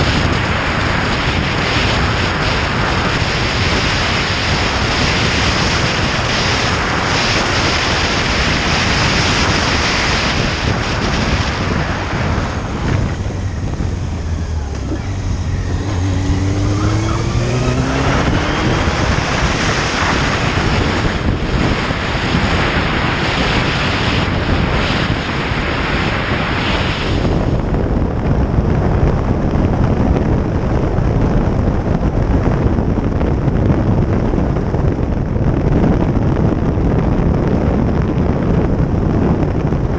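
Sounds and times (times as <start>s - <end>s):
motorcycle engine revving: 0.0s - 24.9s
wind rush over microphone: 0.0s - 39.9s.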